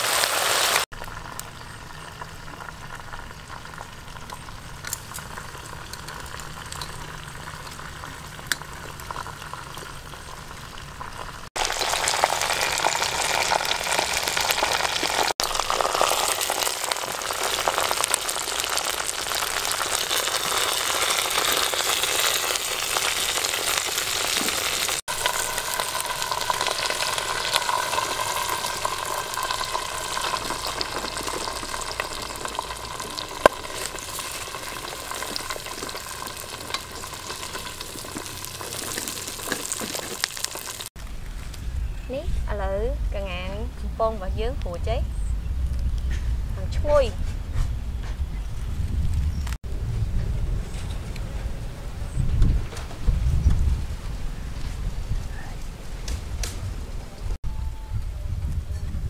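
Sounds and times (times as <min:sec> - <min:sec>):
chicken sizzling in hot oil: 0:00.0 - 0:41.1.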